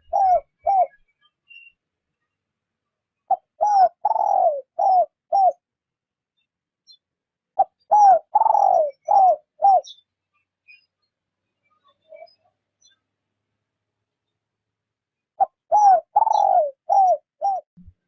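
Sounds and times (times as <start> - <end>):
dove cooing: 0.0 - 1.0, 3.3 - 5.6, 7.6 - 10.0, 15.4 - 17.7.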